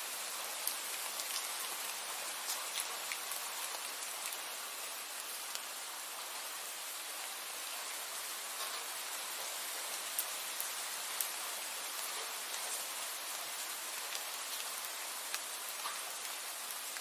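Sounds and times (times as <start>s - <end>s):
steady rain hiss: 0.0s - 17.0s
raindrops ticking: 0.2s - 5.7s, 8.6s - 17.0s.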